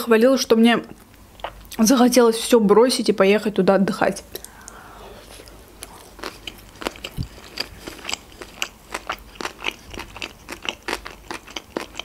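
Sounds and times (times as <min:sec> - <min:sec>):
chewing with mouth clicks: 0:05.4 - 0:12.0.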